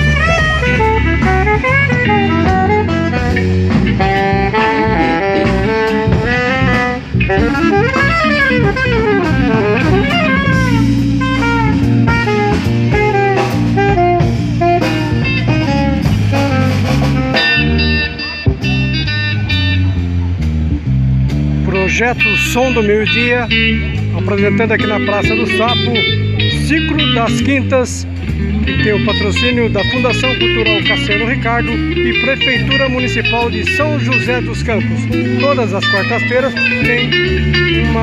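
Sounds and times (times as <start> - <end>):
trumpet: 0.0 - 20.0
saxophone: 0.0 - 20.3, 21.7 - 38.0
bass: 0.0 - 38.0
drum kit: 0.0 - 38.0
electric guitar: 0.0 - 38.0.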